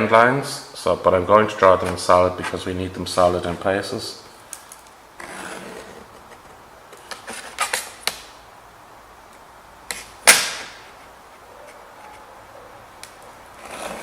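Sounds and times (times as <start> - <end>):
scriber scratching sheet metal: 5.2 - 8.1.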